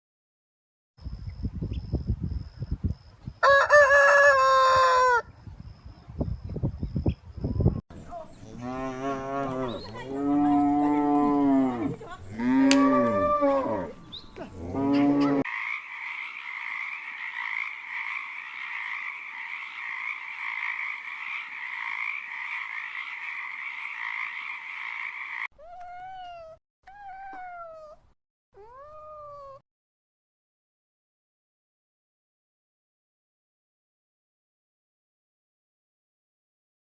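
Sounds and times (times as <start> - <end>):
frogs croaking: 8.0 - 25.5
cattle mooing: 8.4 - 15.5.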